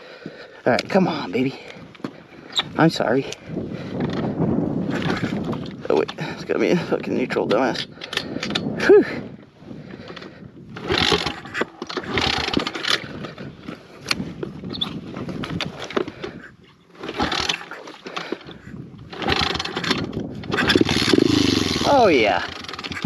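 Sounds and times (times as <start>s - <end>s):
small motorcycle engine sputtering: 10.8s - 13.3s, 17.0s - 23.0s.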